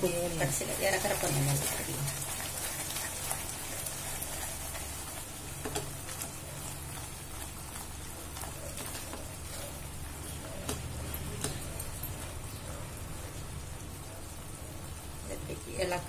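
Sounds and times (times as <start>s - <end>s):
halwa sizzling and bubbling: 0.0s - 16.0s
spatula tapping and scraping pan: 5.6s - 6.3s, 10.4s - 12.3s.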